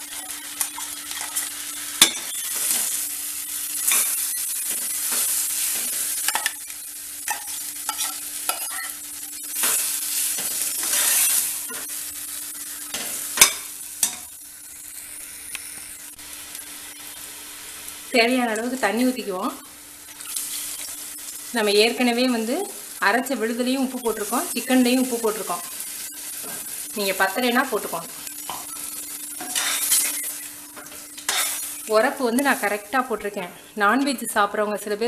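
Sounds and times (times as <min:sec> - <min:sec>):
spoon stirring and scraping pan: 0:00.0 - 0:14.4, 0:20.1 - 0:21.3, 0:24.0 - 0:32.8
food sizzling: 0:00.0 - 0:35.0
spoon clacking on pan: 0:05.9 - 0:06.6, 0:07.2 - 0:09.0, 0:12.9 - 0:14.3.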